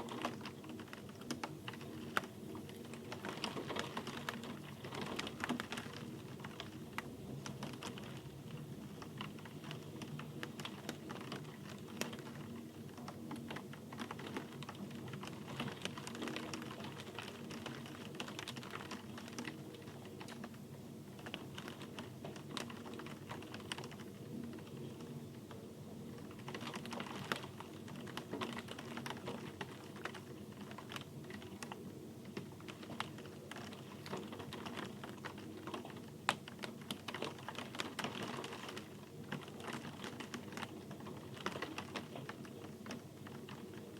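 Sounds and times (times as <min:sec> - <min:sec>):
raindrops ticking on hard surface: 0:00.0 - 0:43.9.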